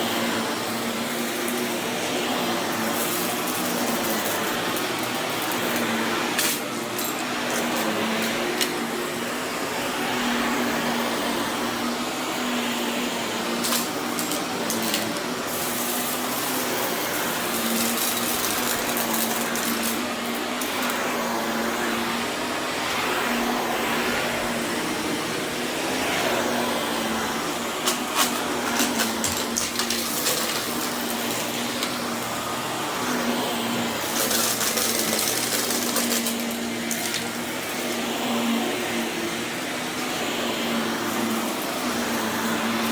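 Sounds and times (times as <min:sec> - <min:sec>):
vacuum cleaner on carpet: 0:00.0 - 0:42.9
debris crackling in vacuum: 0:01.2 - 0:08.9, 0:13.2 - 0:21.2, 0:21.8 - 0:38.0.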